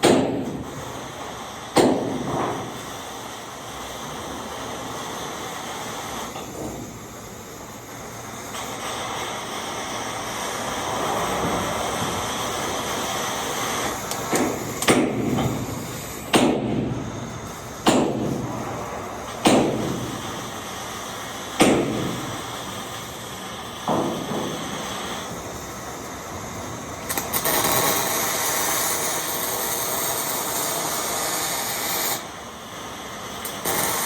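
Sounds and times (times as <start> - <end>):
hammer striking metal: 0.0 - 0.6, 14.3 - 17.1, 17.8 - 18.6, 19.4 - 20.2, 21.6 - 22.4
steady hissing: 0.6 - 34.0.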